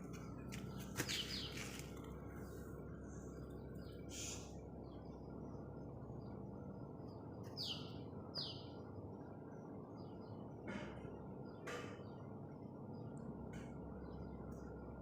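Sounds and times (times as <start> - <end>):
steady low hum: 0.0 - 15.0
hissy bird call: 4.0 - 4.6.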